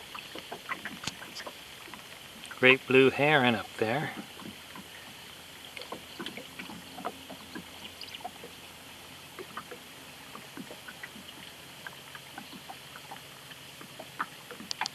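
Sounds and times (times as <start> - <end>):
faint steady hiss: 0.0 - 5.9
water drips and splashes: 0.0 - 14.9.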